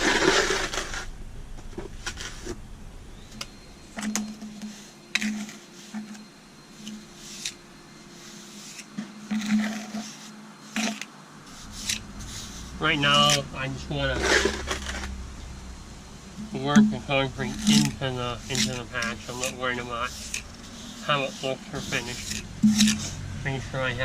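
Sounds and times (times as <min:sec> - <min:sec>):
trowel scraping concrete mix: 0:00.0 - 0:01.1, 0:08.2 - 0:15.1, 0:16.5 - 0:24.0.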